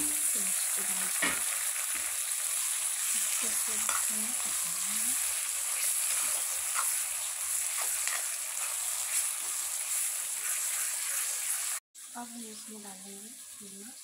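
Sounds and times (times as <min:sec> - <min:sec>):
vegetables sizzling in hot oil: 0:00.0 - 0:14.0
spatula scraping pan: 0:03.0 - 0:11.6.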